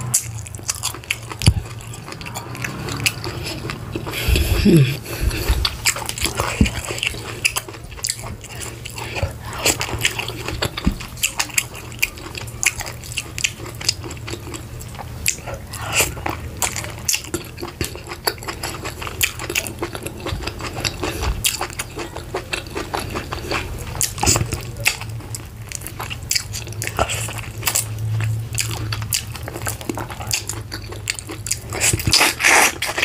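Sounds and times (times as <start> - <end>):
low steady hum: 0.0 - 33.0
mouth chewing wet smacks: 0.0 - 33.0.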